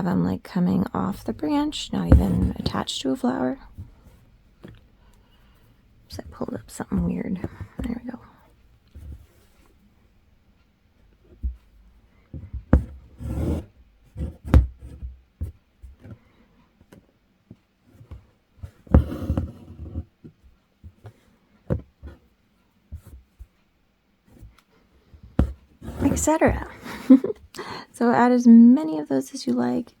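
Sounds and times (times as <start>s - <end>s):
thread rasping through fabric: 18.8s - 20.0s, 25.4s - 26.9s.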